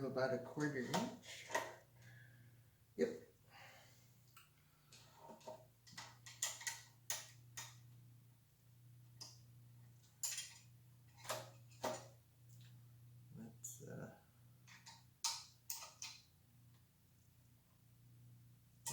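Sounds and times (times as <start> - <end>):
steady low hum: 0.0 - 15.2
metal bicycle parts clicking: 5.9 - 7.8, 10.2 - 10.7, 14.7 - 16.3.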